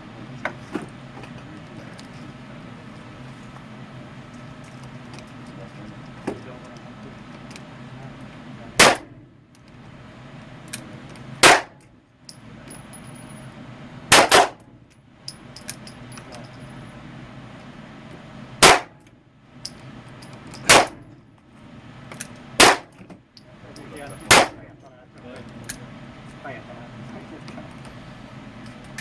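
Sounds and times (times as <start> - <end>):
handgun shots echoing indoors: 8.8 - 9.1, 11.4 - 11.8, 14.1 - 14.6, 18.6 - 18.9, 20.7 - 21.0, 22.6 - 22.9, 24.3 - 24.6.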